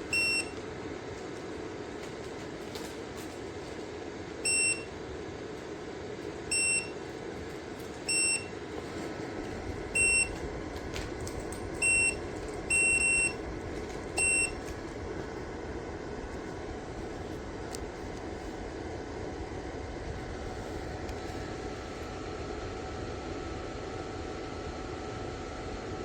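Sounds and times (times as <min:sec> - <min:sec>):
heater control panel beeping: 0:00.0 - 0:01.8, 0:04.4 - 0:05.1, 0:06.3 - 0:07.2, 0:08.0 - 0:14.8
heater whirring: 0:00.0 - 0:26.0.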